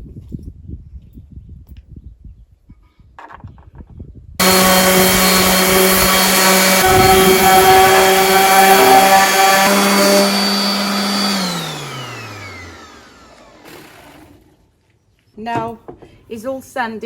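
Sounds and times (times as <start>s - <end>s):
coarse rasp of sanding: 4.4s - 11.6s
power sander motor hum: 4.4s - 14.5s.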